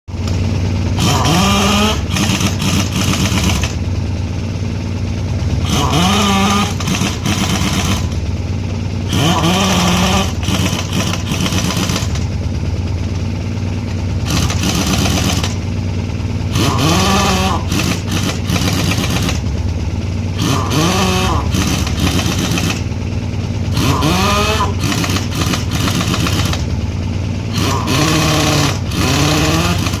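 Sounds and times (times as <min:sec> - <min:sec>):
low engine hum: 0:00.1 - 0:30.0
pneumatic impact wrench: 0:00.2 - 0:03.9, 0:05.6 - 0:08.2, 0:09.1 - 0:12.3, 0:14.2 - 0:15.8, 0:16.5 - 0:19.6, 0:20.3 - 0:23.0, 0:23.7 - 0:26.8, 0:27.5 - 0:30.0.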